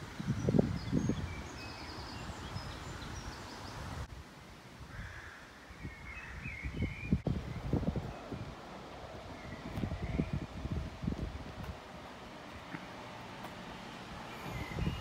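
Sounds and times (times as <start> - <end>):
outdoor background noise: 0.0 - 15.0
small birds chirping: 0.2 - 4.0, 12.4 - 15.0.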